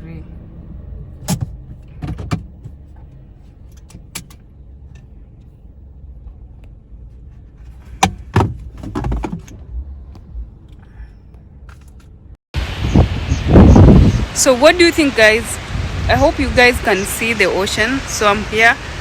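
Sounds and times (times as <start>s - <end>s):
low rumble inside car: 0.0s - 19.0s
rattles: 7.4s - 12.2s.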